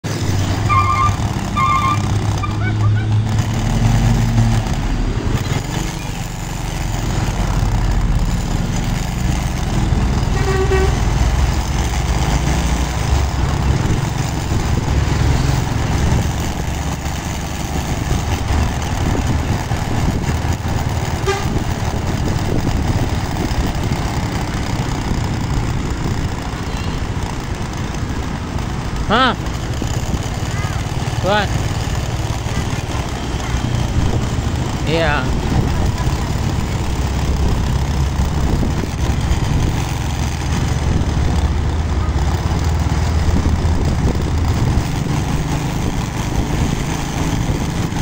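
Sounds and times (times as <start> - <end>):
truck engine rumbling: 0.0 - 48.0
truck horn toot: 0.5 - 3.3, 10.2 - 11.2, 21.2 - 21.7.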